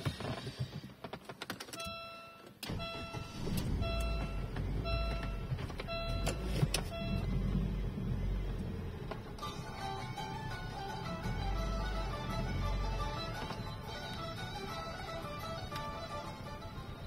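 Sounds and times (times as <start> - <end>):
dashboard warning chime beeping: 1.8 - 8.5
car engine idling: 2.7 - 17.0.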